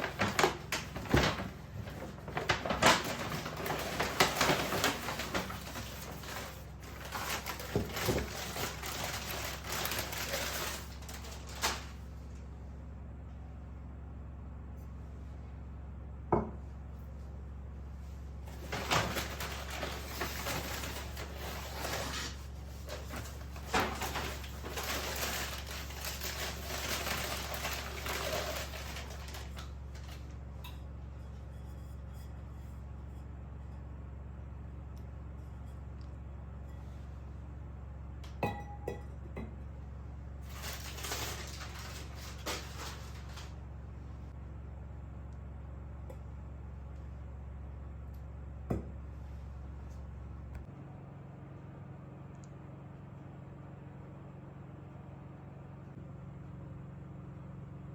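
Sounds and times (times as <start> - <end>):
rustling: 0.0 - 12.0, 18.0 - 30.3, 40.4 - 43.6
steady low hum: 0.0 - 57.9
glass dishes clinking: 38.4 - 39.5.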